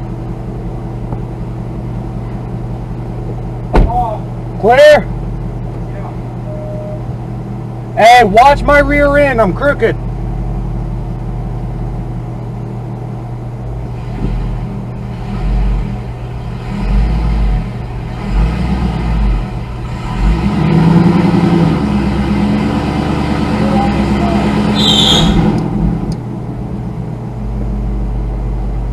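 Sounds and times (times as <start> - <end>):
car engine revving: 13.4 - 28.4.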